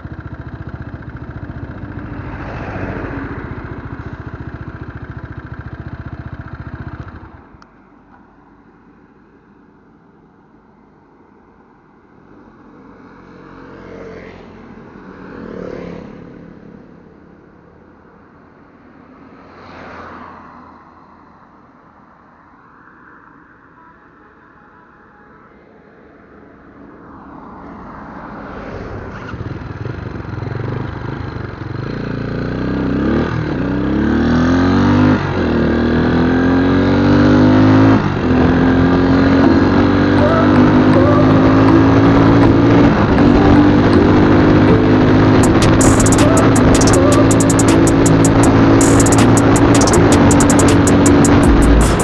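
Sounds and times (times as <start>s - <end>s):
motorcycle engine accelerating: 0.0s - 7.6s, 29.1s - 52.0s
vehicles passing by: 0.0s - 24.4s, 25.6s - 52.0s
low engine rumble: 39.4s - 52.0s.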